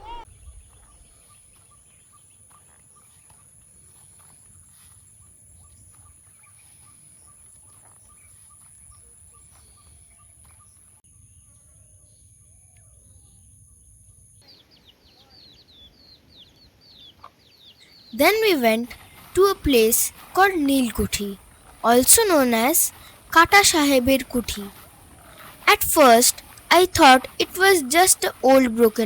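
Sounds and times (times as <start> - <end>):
birds twittering: 14.4 - 29.0.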